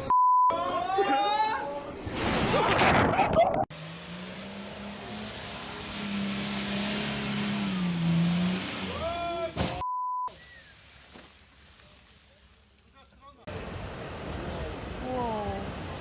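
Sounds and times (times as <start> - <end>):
censor bleep: 0.0 - 0.6, 9.8 - 10.3
vehicle engine humming: 3.7 - 9.8.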